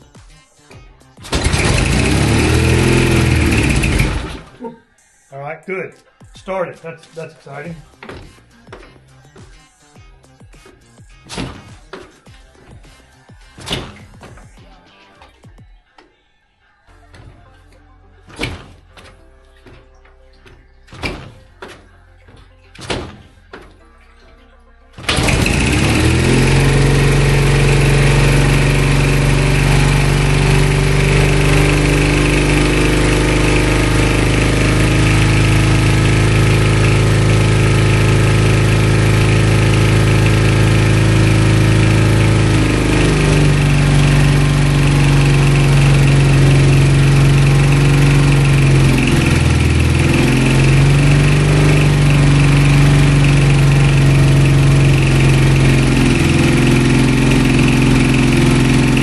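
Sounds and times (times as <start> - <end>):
motorcycle engine idling: 1.3 - 4.7, 25.0 - 59.0.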